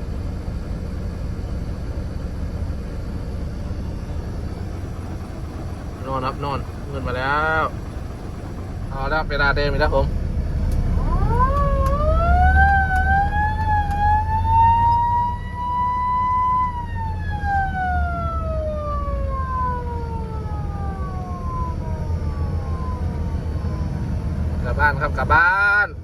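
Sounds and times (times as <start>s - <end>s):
low rumbling noise: 0.0s - 26.0s
siren wailing: 8.8s - 24.9s.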